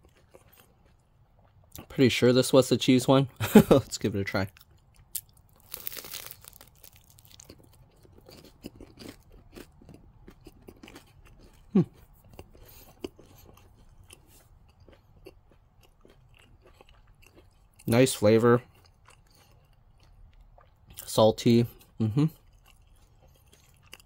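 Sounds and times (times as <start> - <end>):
chewing with wet mouth clicks: 0.0 - 1.9, 4.5 - 17.9, 18.6 - 21.1, 21.7 - 24.0
crunch of biting pretzel: 4.6 - 17.6.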